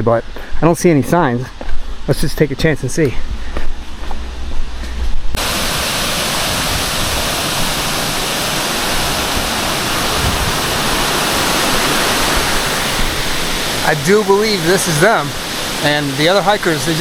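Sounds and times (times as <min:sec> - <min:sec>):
waterfall rushing: 0:05.4 - 0:17.0.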